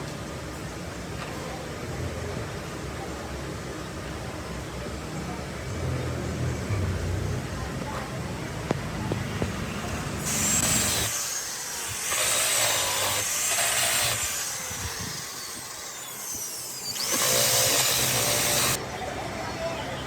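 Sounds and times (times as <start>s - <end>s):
power tool whining: 9.4s - 18.8s.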